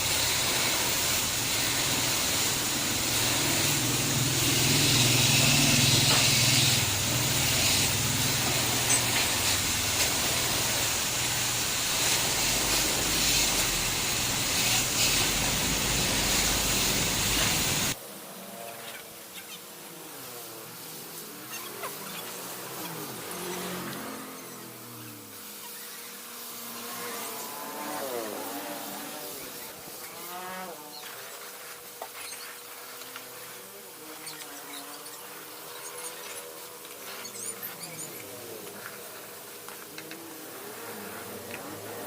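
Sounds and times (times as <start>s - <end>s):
loud pressurized hiss: 0.0s - 18.0s.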